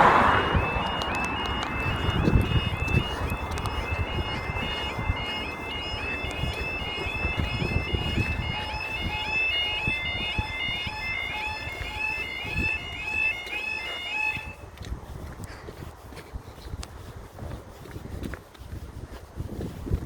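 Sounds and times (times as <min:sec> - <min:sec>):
low rumbling noise: 0:00.0 - 0:05.0
level crossing alarm warbling: 0:00.0 - 0:14.6.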